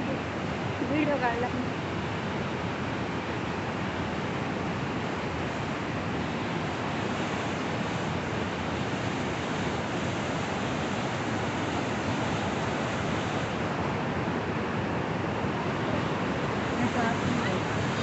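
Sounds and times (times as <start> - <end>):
turbulent river rushing: 0.0 - 18.0.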